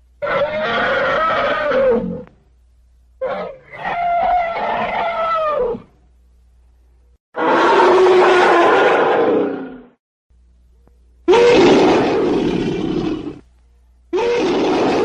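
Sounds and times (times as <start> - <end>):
low recording hum: 0.0 - 15.0
elephant trumpeting: 3.2 - 5.8, 11.3 - 13.4, 14.2 - 15.0.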